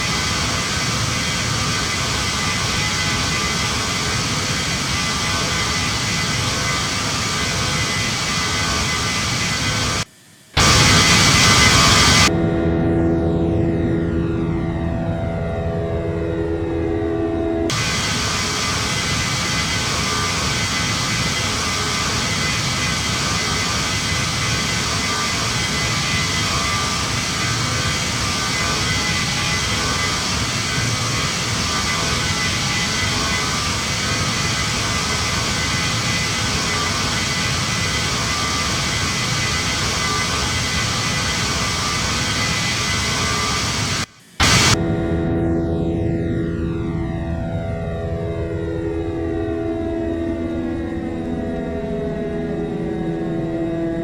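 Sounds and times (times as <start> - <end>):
jet engine and airflow rush: 0.0 - 12.4, 16.2 - 44.8
faint engine whine: 0.0 - 54.0.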